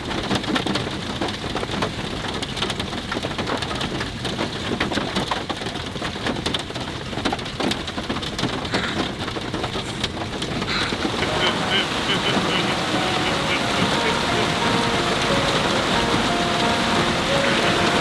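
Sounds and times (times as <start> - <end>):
heavy rain falling: 7.5 - 18.0.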